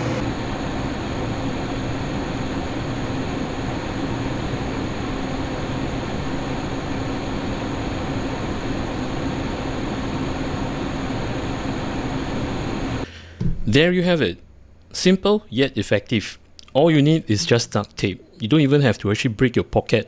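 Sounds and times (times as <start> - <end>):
computer fans whooshing: 0.0 - 1.9.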